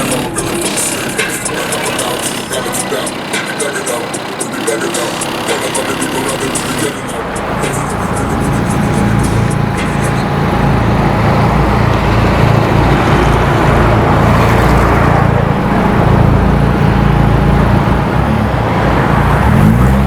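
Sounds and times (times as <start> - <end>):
car road and wind noise: 0.0 - 20.0
heavy low rumble: 5.1 - 19.6.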